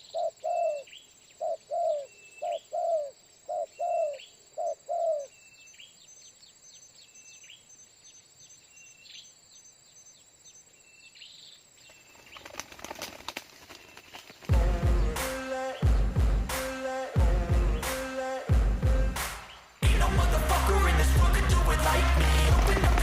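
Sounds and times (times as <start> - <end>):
dove cooing: 0.0 - 5.3
small birds chirping: 0.0 - 16.5
rustling: 12.1 - 14.5, 21.9 - 23.0.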